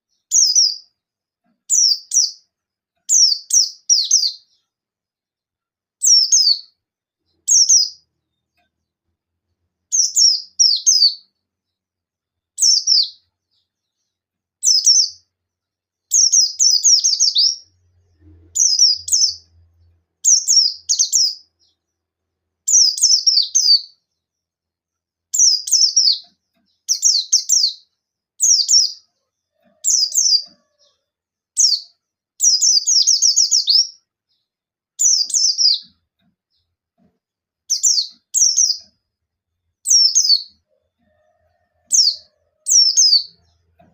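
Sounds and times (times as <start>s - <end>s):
bird fast high chirps: 16.1s - 19.6s, 20.2s - 21.8s, 22.7s - 24.0s, 25.4s - 29.1s, 35.0s - 36.0s.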